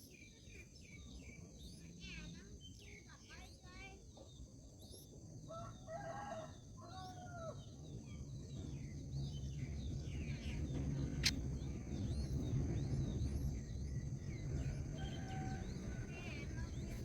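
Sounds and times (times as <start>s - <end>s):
small birds chirping: 0.0s - 5.4s, 7.0s - 17.0s
distant rooster crowing: 5.5s - 7.8s, 14.8s - 16.6s.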